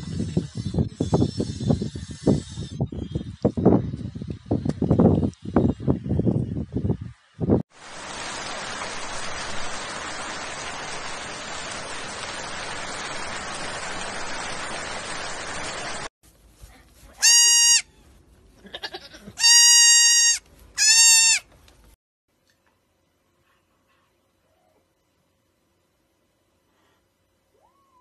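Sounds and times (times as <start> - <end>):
heavy rain pouring: 7.7 - 16.1
young goat bleating: 17.2 - 18.0, 18.6 - 21.4.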